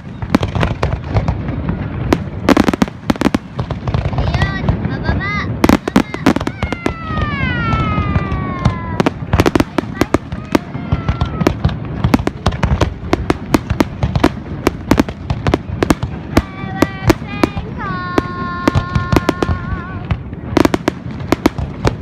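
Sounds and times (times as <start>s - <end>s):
fireworks cracking: 0.0s - 22.0s.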